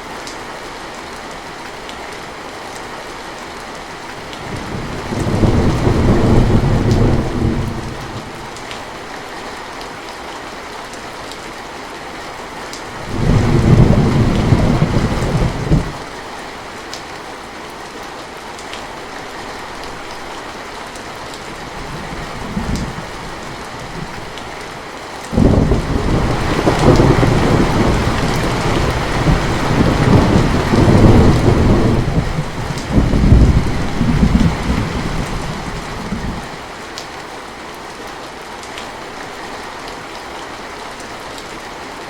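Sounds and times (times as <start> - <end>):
steady rain falling: 0.0 - 42.0
thunder rolling: 4.5 - 8.4, 13.1 - 16.0, 21.8 - 24.3, 25.3 - 36.5.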